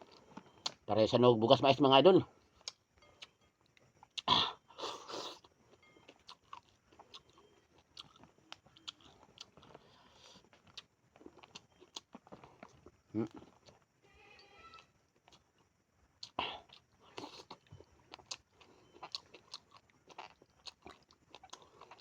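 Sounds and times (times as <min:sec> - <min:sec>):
chewing clicks and mouth smacks: 0:06.1 - 0:13.8, 0:15.2 - 0:22.0.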